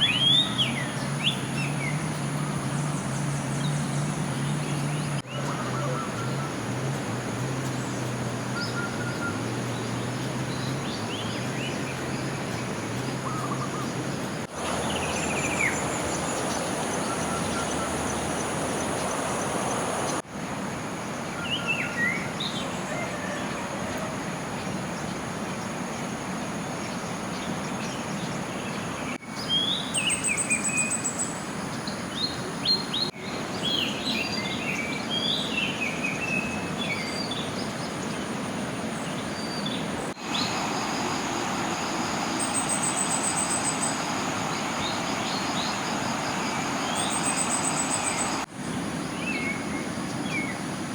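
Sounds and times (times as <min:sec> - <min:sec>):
birds chirping: 0:00.0 - 0:20.2, 0:28.1 - 0:48.5
water rushing: 0:00.0 - 0:21.2, 0:37.5 - 0:50.9
high insect drone: 0:05.8 - 0:20.2, 0:40.2 - 0:48.5.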